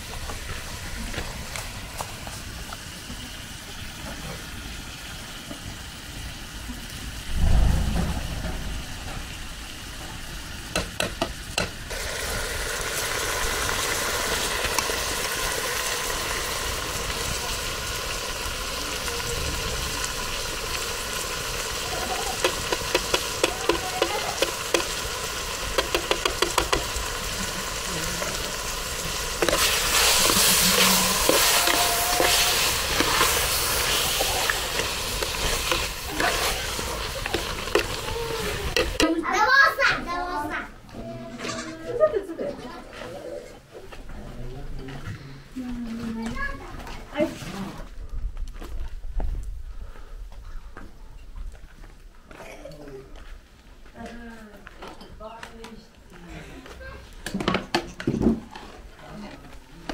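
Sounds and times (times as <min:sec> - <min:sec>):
food sizzling in a pot: 0:00.0 - 0:39.8
metal ladle scraping a pot: 0:29.4 - 0:38.0.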